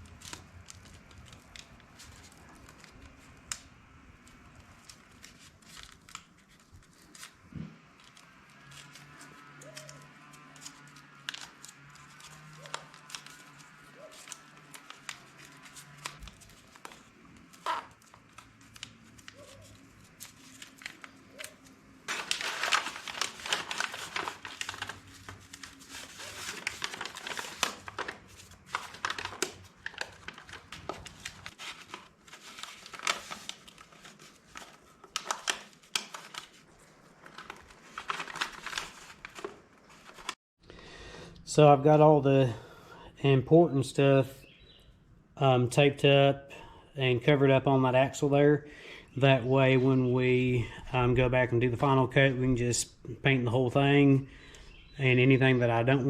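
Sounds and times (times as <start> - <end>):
plastic sheet crinkling: 0.0 - 40.4
tape tearing off roll: 5.5 - 36.7.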